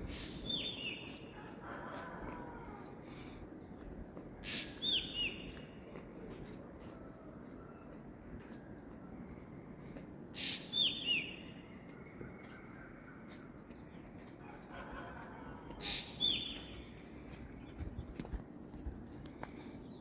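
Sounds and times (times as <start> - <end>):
bird calling with falling chirps: 0.0 - 1.8, 4.4 - 5.7, 10.4 - 14.0, 14.7 - 18.2
outdoor ambience hiss: 0.0 - 20.0.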